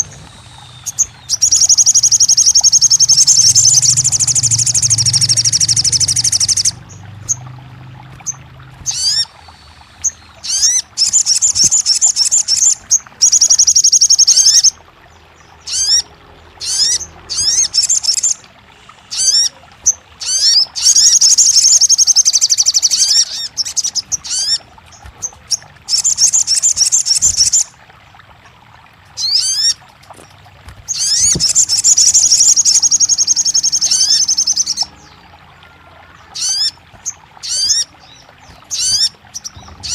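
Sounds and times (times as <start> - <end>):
bird trilling: 0.0 - 14.8, 19.1 - 27.7, 30.9 - 34.9, 36.1 - 39.9.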